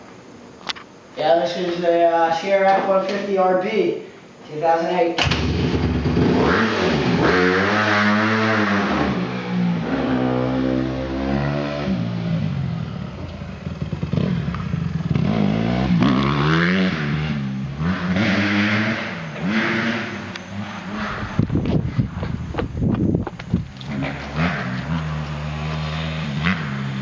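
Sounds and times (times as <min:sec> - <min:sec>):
dirt bike engine revving: 0:05.2 - 0:21.9, 0:23.8 - 0:27.0.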